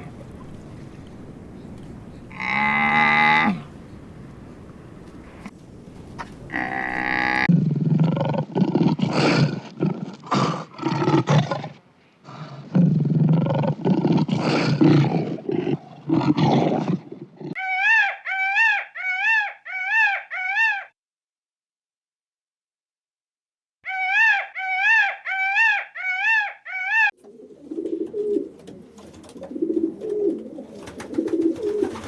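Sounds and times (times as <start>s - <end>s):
high animal calls: 2.2s - 4.0s, 6.1s - 7.5s, 17.5s - 21.0s, 23.8s - 27.2s
large animal roaring: 2.3s - 3.7s, 6.5s - 11.7s.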